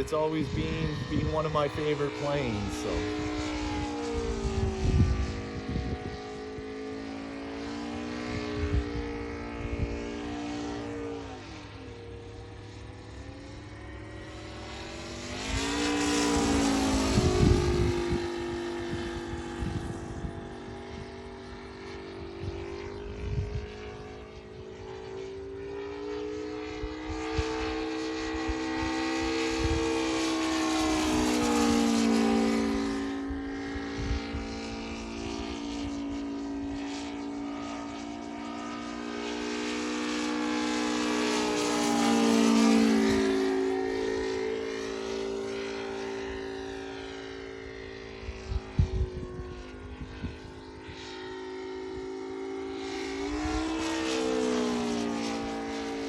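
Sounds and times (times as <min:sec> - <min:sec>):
wind rumbling on microphone: 0:00.0 - 0:06.8, 0:08.2 - 0:10.3, 0:16.3 - 0:24.8, 0:29.5 - 0:30.0, 0:33.3 - 0:36.0, 0:48.2 - 0:51.0, 0:53.3 - 0:53.8
model plane engine passing: 0:00.0 - 0:56.0.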